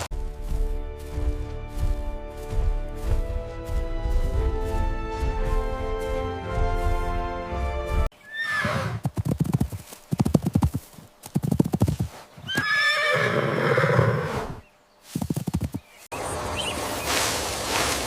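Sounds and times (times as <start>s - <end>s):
hooves clattering: 0.0s - 8.1s, 9.0s - 12.8s, 15.1s - 16.0s
music: 0.1s - 8.1s
horse whinnying: 8.2s - 9.0s, 12.4s - 14.6s.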